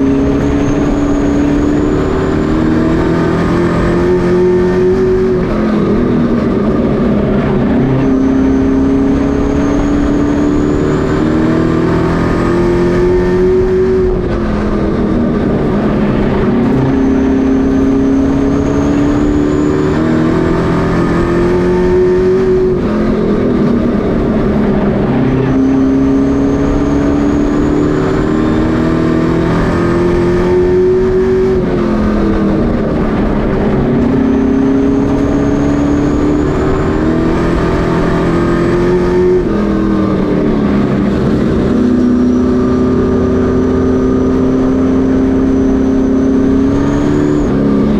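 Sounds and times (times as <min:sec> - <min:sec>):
racing truck engines: 0:00.0 - 0:47.9.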